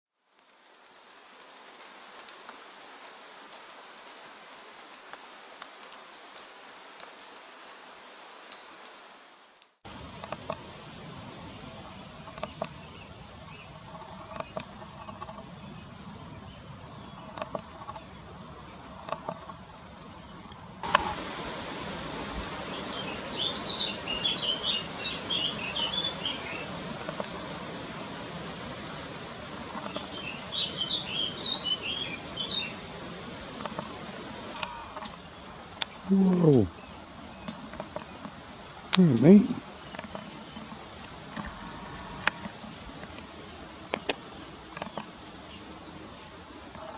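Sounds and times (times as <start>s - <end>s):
outdoor background noise: 0.1s - 46.9s
soft rain hiss: 0.1s - 46.9s
raindrop ticks: 0.3s - 10.9s, 12.2s - 12.9s, 13.8s - 15.5s, 17.2s - 18.1s, 18.9s - 45.2s
songbird chirping: 9.9s - 46.9s.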